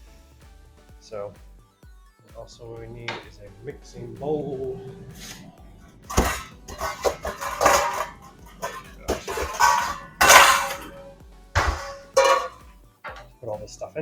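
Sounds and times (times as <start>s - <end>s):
kitchenware clattering: 5.2s - 13.3s.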